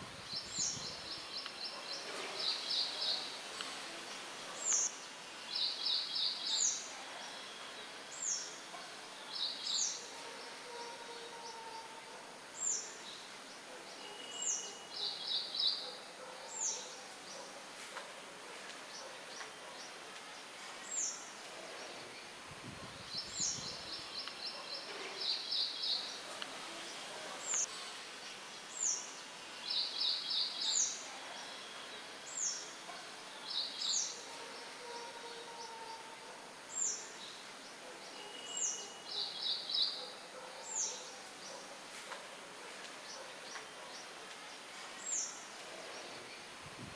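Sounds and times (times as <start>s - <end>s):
soft wind hiss: 0.0s - 8.6s, 20.6s - 34.0s, 44.3s - 46.9s.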